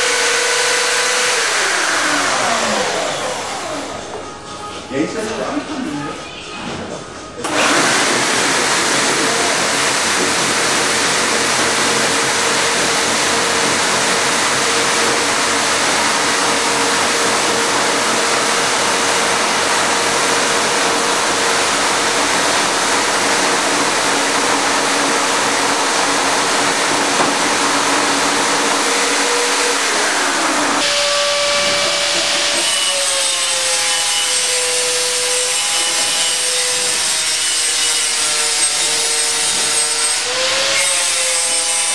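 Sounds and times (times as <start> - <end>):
milling machine cutting noise: 0.0 - 4.6, 7.4 - 41.9
motor whine: 0.0 - 4.7, 7.4 - 36.2.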